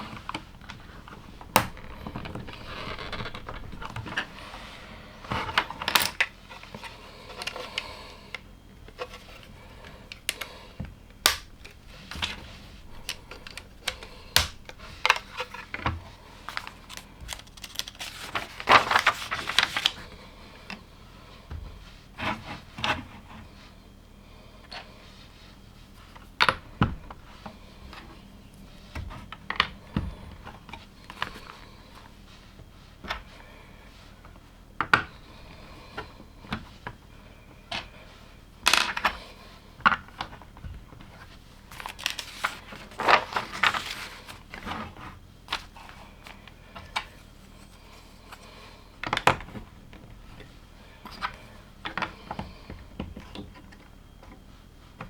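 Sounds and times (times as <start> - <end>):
loose plastic pieces rattling: 0.0 - 6.3, 16.4 - 20.0.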